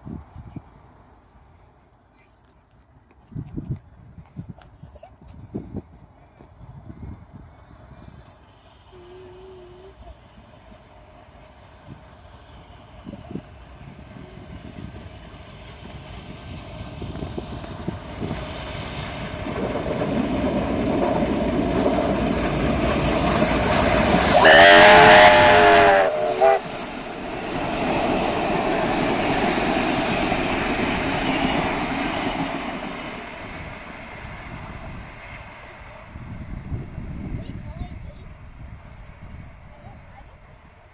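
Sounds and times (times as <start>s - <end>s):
steam train running: 5.6s - 40.9s
chime steam whistle: 24.3s - 26.9s.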